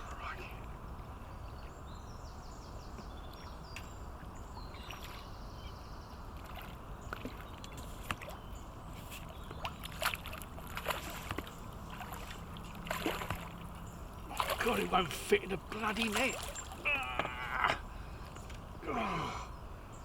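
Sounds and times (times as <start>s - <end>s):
low background rumble: 0.0s - 20.0s
fish splashing in water: 9.2s - 17.5s.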